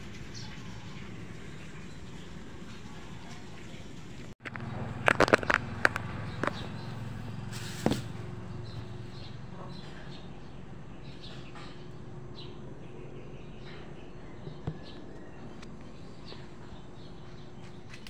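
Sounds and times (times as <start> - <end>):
steady low hum: 4.0 - 18.0.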